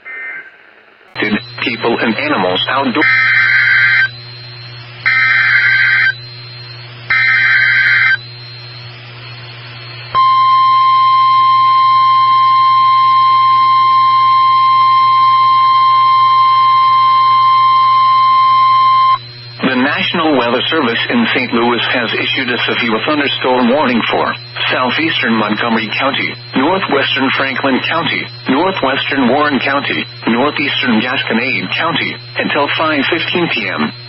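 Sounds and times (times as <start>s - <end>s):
low reception hum: 0.0s - 34.0s
steady warning alarm tone: 0.0s - 34.0s
short digital buzzing bursts: 3.0s - 8.8s.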